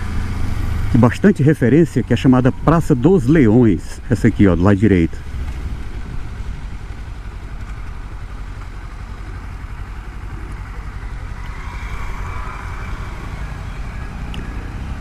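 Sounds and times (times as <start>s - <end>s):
motorcycle engine at low revs: 0.0s - 15.0s
higher hum: 8.8s - 15.0s.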